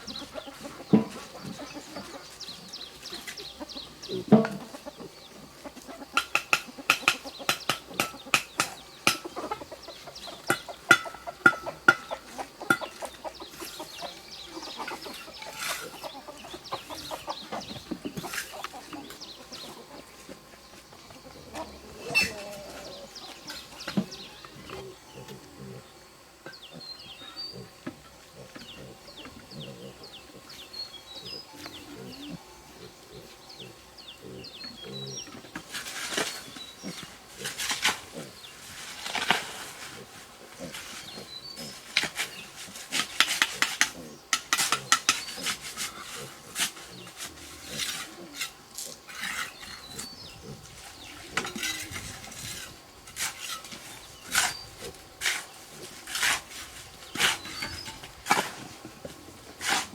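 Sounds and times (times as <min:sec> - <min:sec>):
sharp knocks and scrapes: 0:00.2 - 0:02.1, 0:04.2 - 0:04.8, 0:10.2 - 0:24.9, 0:34.9 - 0:59.9
animal grunts and calls: 0:21.1 - 0:35.5, 0:39.6 - 0:52.7.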